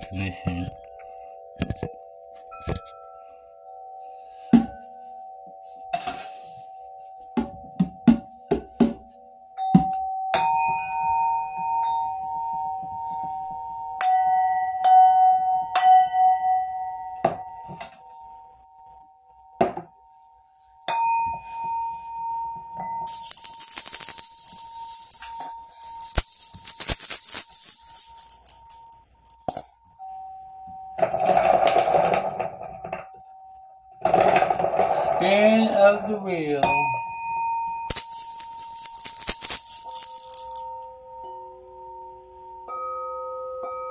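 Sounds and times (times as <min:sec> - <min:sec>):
shaker rattle: 0:23.1 - 0:29.9, 0:37.9 - 0:40.8.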